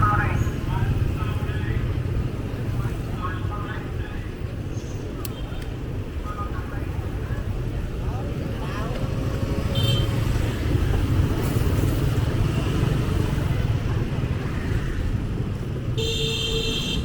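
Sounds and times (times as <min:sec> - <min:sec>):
traffic rumble: 0:00.0 - 0:17.0
car horn: 0:16.0 - 0:17.0.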